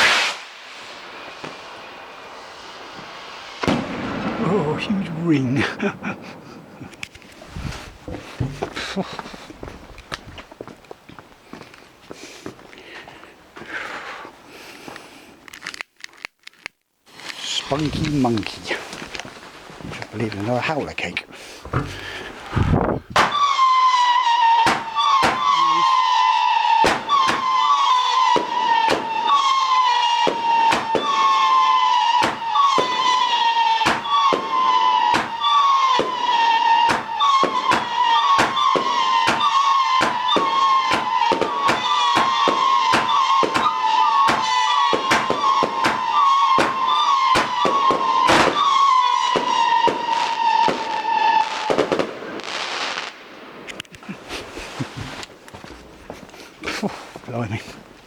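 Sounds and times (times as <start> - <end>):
short hiss: 0.0 - 1.0
firework whistles: 0.0 - 4.4, 21.7 - 53.8
firework bangs: 0.0 - 10.1, 21.6 - 55.3.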